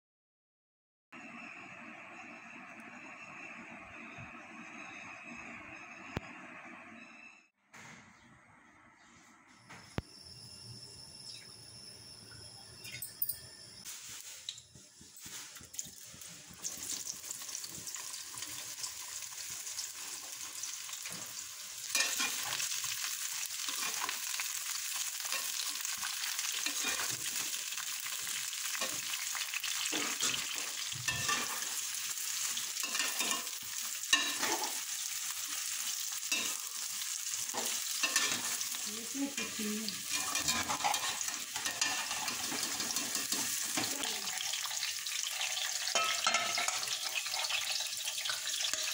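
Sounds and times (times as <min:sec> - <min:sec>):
vegetables sizzling in hot oil: 0:13.9 - 0:48.9
spatula scraping and knocking pan: 0:29.8 - 0:31.9, 0:32.8 - 0:34.8, 0:37.4 - 0:38.7, 0:39.4 - 0:44.0, 0:45.9 - 0:47.6.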